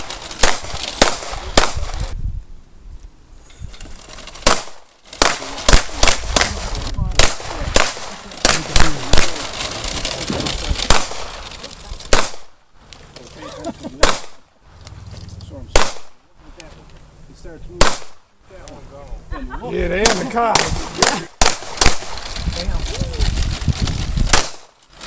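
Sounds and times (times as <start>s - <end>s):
pistol gunshots: 0.0s - 2.1s, 4.4s - 9.4s, 10.8s - 11.3s, 12.1s - 12.6s, 14.0s - 14.4s, 15.7s - 16.2s, 17.8s - 18.3s, 20.0s - 22.2s, 24.3s - 24.7s.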